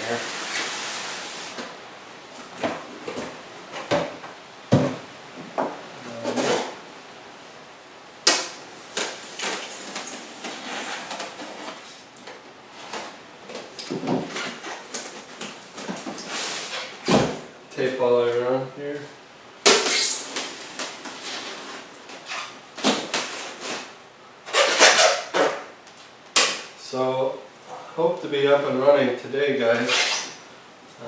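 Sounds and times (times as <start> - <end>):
styrofoam scraping and rustling: 9.0 - 12.0, 14.2 - 17.1, 19.8 - 25.7.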